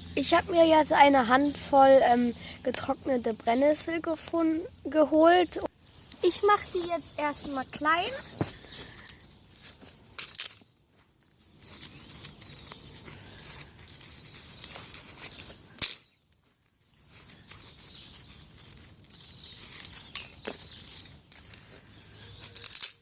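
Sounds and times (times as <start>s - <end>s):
dry leaves crackling and rustling: 5.7s - 23.0s
sharp crack of dry stems: 8.2s - 23.0s.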